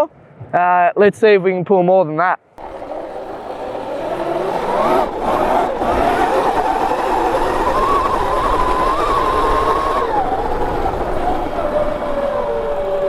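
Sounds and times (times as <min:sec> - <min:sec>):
electric motor whining: 0:02.6 - 0:13.0
wind noise: 0:02.6 - 0:13.0.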